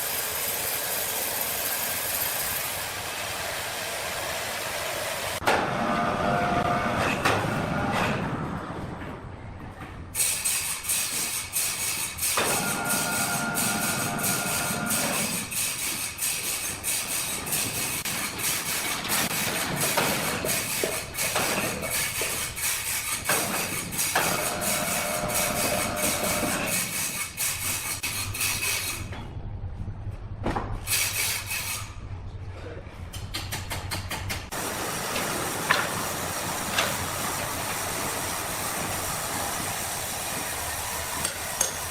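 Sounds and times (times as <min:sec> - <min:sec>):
sawmill machinery rhythmic clatter: 0:00.0 - 0:09.5, 0:10.2 - 0:29.2, 0:33.1 - 0:41.9.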